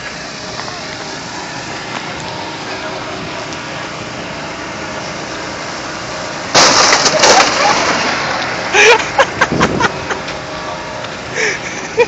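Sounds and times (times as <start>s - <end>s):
crash of breaking glass and plastic: 6.5s - 8.3s
cracking and crunching: 6.5s - 8.5s.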